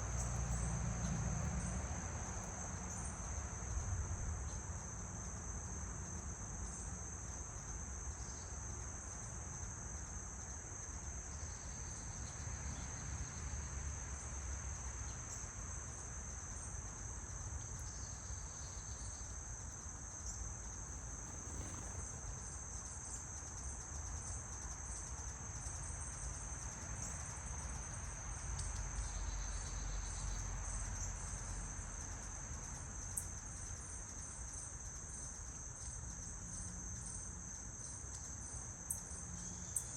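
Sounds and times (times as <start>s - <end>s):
insects trilling: 17.3s - 39.9s.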